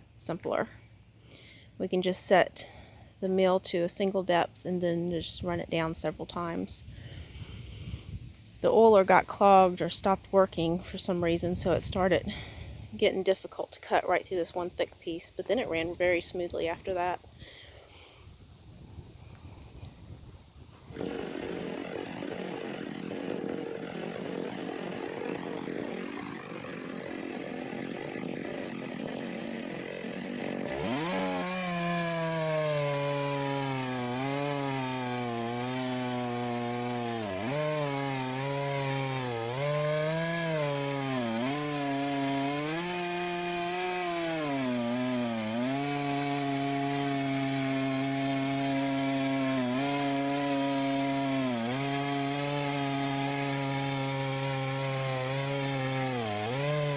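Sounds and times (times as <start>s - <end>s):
chainsaw cutting a log: 20.9s - 56.9s.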